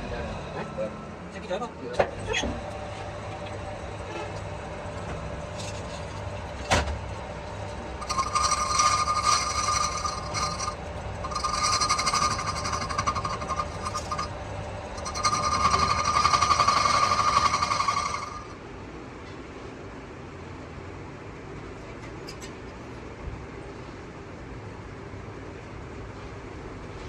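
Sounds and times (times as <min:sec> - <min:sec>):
metal lathe humming: 0:08.0 - 0:18.6
pulsing buzz of tool cutting metal: 0:08.0 - 0:18.6.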